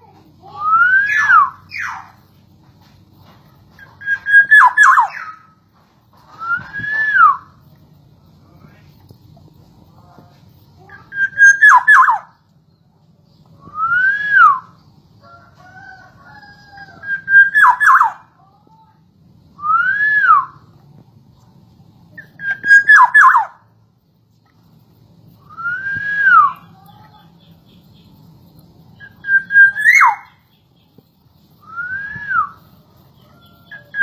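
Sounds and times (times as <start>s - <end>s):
bird singing fluty whistles: 0.5s - 2.2s, 3.8s - 5.4s, 6.4s - 7.6s, 10.9s - 12.4s, 13.6s - 14.8s, 16.6s - 18.2s, 19.6s - 20.7s, 22.2s - 23.6s, 25.4s - 26.8s, 29.0s - 30.6s, 31.6s - 32.7s.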